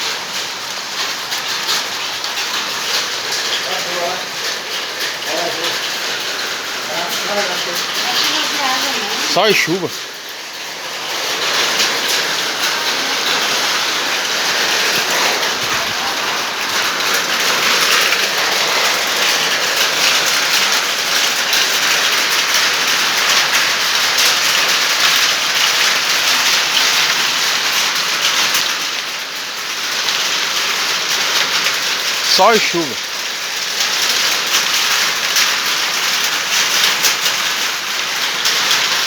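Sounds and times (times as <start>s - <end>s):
rain pattering: 0.0s - 39.0s.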